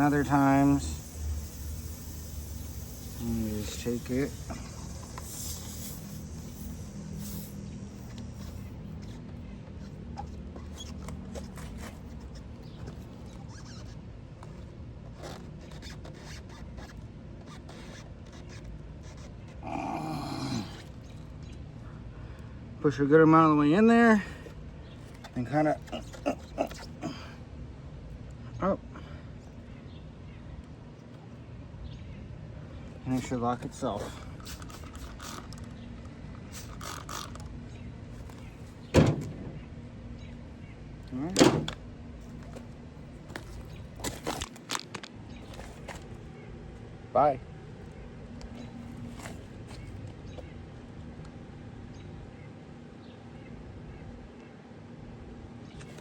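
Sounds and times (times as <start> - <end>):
tire plug tool scraping: 0.0 - 19.6, 25.0 - 27.0, 33.6 - 37.6
hand tools clicking and rattling: 34.1 - 37.5
loud clunk: 38.9 - 39.7.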